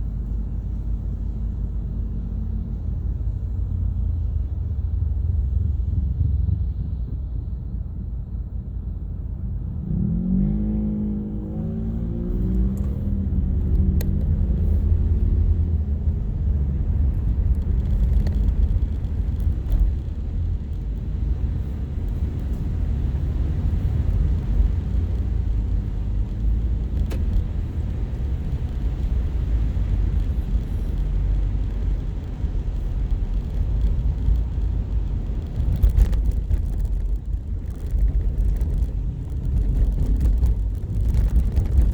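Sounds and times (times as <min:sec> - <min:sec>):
road and engine rumble: 0:00.0 - 0:41.9.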